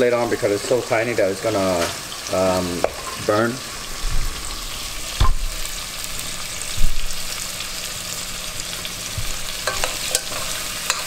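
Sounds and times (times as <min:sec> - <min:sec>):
aromatics sizzling in hot oil: 0:00.0 - 0:11.0
thump: 0:05.2 - 0:05.4
spoon stirring in pot: 0:09.6 - 0:11.0.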